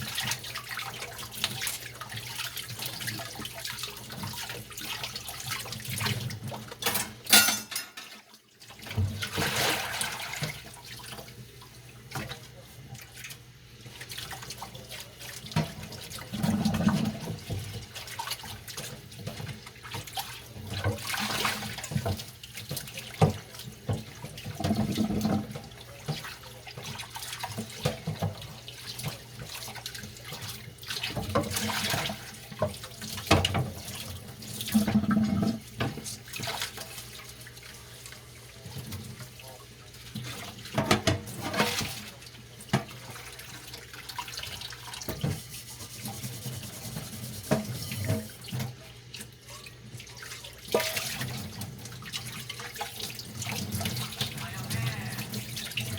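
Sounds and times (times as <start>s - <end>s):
tap water splashing over dishes: 0.0s - 55.9s
dishes clinking: 6.8s - 8.2s.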